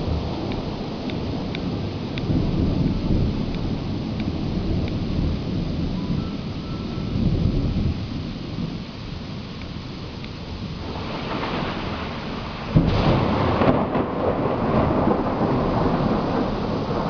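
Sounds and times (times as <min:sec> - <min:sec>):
rain falling: 0:00.0 - 0:17.0
thunder rumbling: 0:00.0 - 0:17.0.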